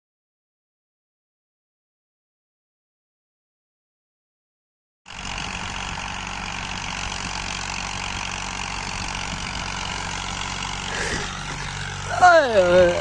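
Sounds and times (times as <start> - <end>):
tractor diesel engine running: 5.1 - 13.0.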